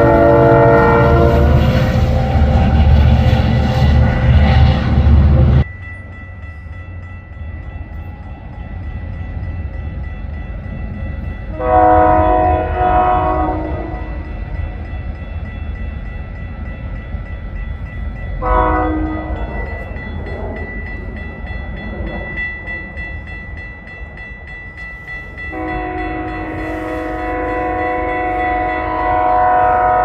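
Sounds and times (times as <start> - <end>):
train horn blasts: 0.0 - 3.0, 11.5 - 14.3, 18.4 - 19.6, 25.5 - 30.0
loud train noise: 0.0 - 30.0
train rumble: 0.0 - 30.0.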